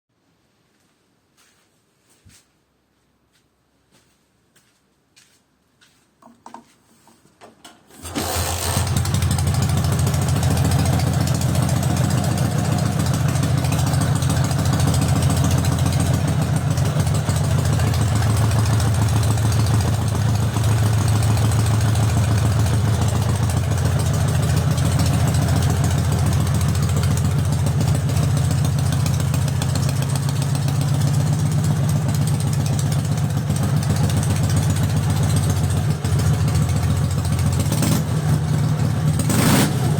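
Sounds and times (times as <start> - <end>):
motorcycle engine idling fast: 8.0 - 39.9.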